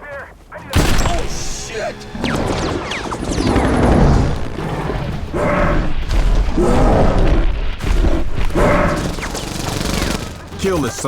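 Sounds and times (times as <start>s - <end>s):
heavy low rumble: 0.8s - 9.3s
deep booming impacts: 0.8s - 9.5s.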